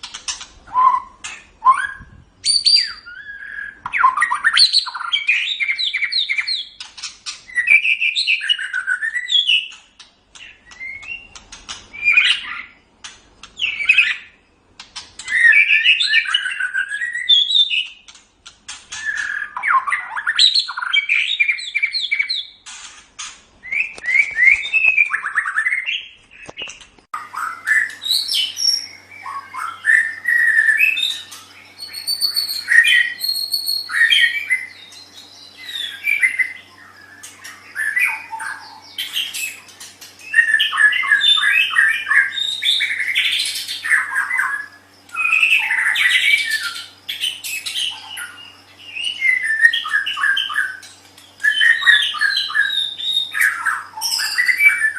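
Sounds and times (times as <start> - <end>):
bird singing whistled phrases: 0.7 - 6.8, 7.5 - 9.8, 15.2 - 17.9, 18.9 - 22.6, 27.2 - 54.9.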